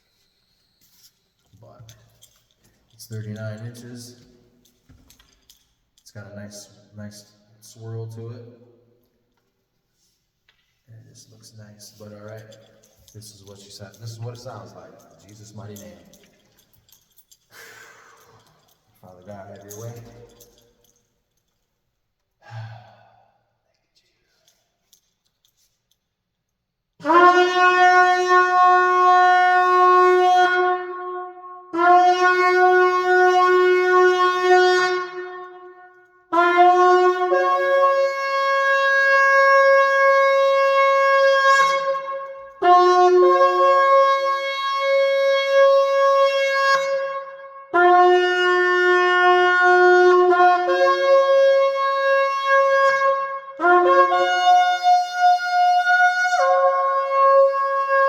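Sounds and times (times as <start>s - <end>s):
shofar blasts: 11.8s - 16.7s, 18.2s - 20.6s, 27.0s - 58.0s.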